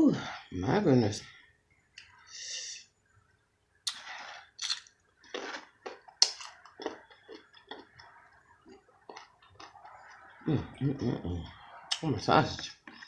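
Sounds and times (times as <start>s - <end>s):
chewing and wet mouth sounds: 3.8s - 13.0s.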